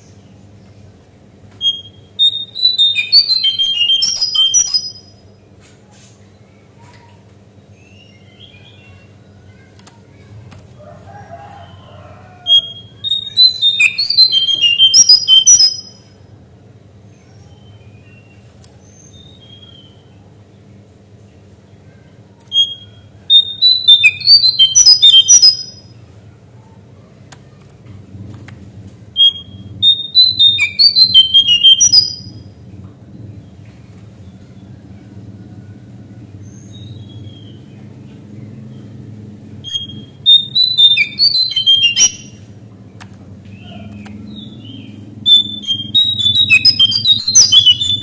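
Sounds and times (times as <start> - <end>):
bird singing whistled notes: 1.6 - 5.2, 12.4 - 16.1, 22.5 - 25.9, 29.2 - 32.4, 39.6 - 42.5, 43.6 - 48.0
steady low hum: 22.7 - 48.0.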